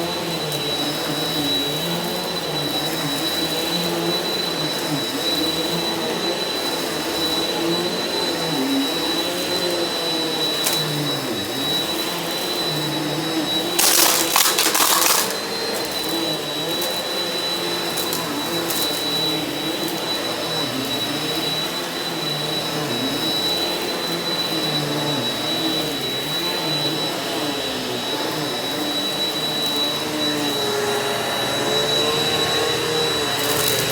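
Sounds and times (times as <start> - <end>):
vacuum cleaner running: 0.0 - 33.9.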